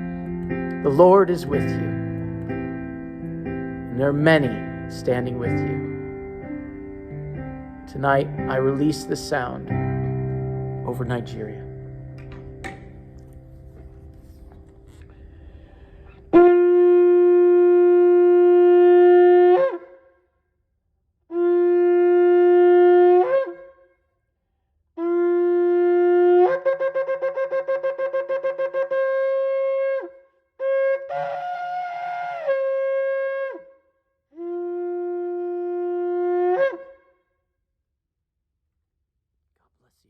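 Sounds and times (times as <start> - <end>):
shofar blasts: 16.3 - 19.9, 21.3 - 23.7, 25.0 - 33.6, 34.4 - 37.0.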